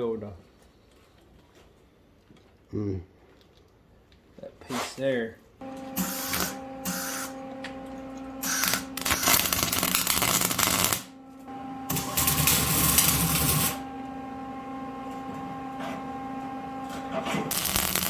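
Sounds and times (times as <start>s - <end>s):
steady welder hum: 5.6s - 18.0s
crackling welding arc: 6.0s - 7.3s, 8.4s - 11.1s, 11.9s - 13.8s, 17.5s - 18.0s.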